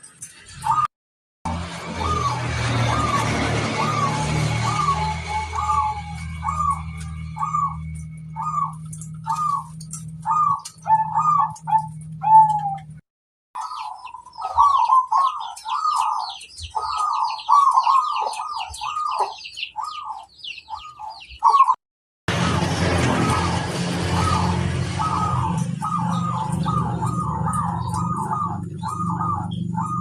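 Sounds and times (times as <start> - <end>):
doves cooing: 2.0 - 13.0, 13.6 - 21.8, 23.0 - 30.0
small birds chirping: 3.8 - 12.9, 13.6 - 21.8, 24.2 - 30.0.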